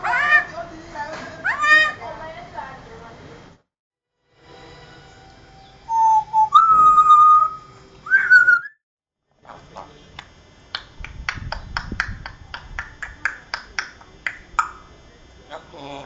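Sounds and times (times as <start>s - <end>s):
parrot whistling notes: 5.6s - 8.8s.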